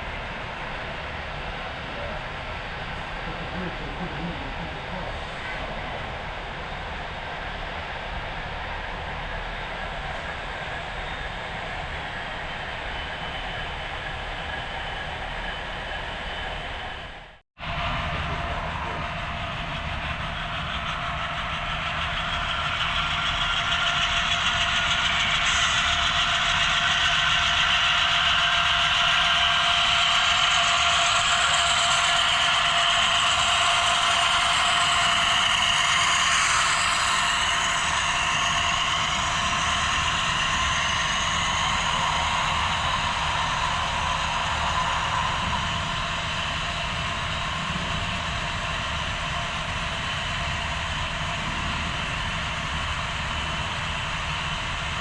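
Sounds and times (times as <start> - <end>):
model train rolling: 19.1 - 55.0.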